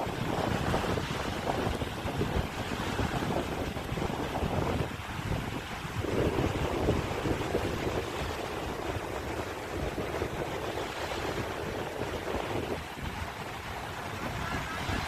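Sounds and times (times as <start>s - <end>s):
sea waves: 0.0s - 15.0s
wind buffeting microphone: 0.0s - 15.0s.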